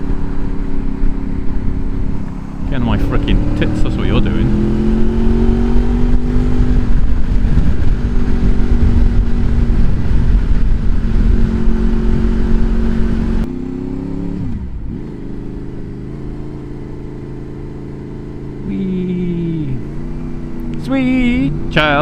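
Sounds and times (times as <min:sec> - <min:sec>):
wind rush: 0:00.0 - 0:13.5
motorcycle engine running: 0:00.0 - 0:22.0.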